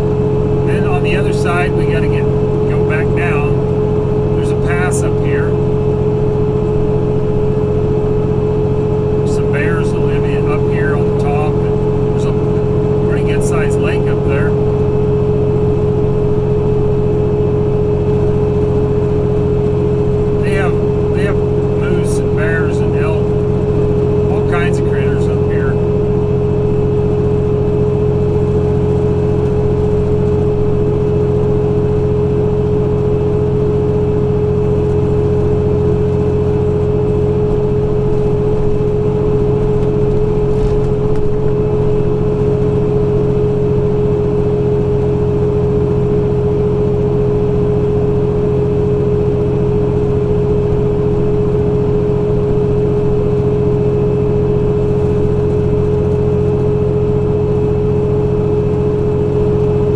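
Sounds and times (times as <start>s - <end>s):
steady whine: 0.0s - 32.7s
diesel engine drone: 0.0s - 59.9s.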